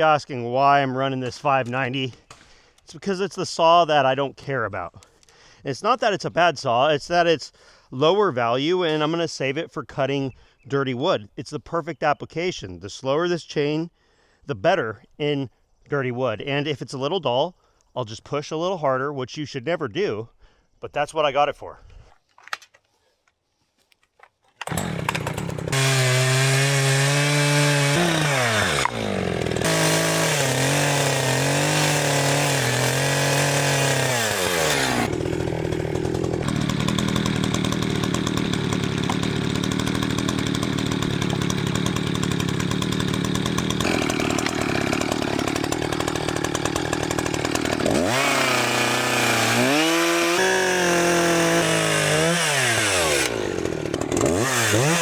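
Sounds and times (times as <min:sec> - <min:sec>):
chainsaw cutting wood: 0:24.5 - 0:55.0.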